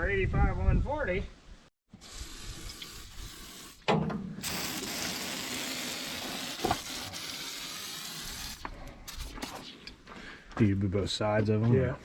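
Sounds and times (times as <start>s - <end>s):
sprayer hissing: 4.4s - 9.6s.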